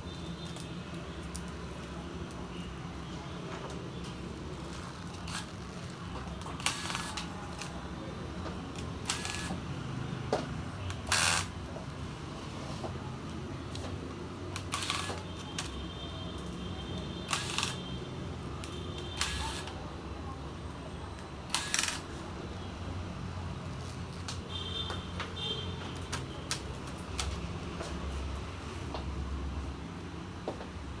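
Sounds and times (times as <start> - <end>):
plastic parts clicking and scraping: 3.7 - 7.8, 13.7 - 15.8, 17.3 - 17.9.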